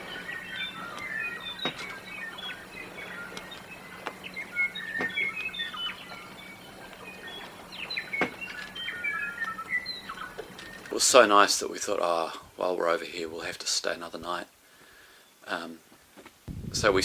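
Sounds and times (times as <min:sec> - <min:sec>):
birds chirping and calling: 0:00.0 - 0:12.2.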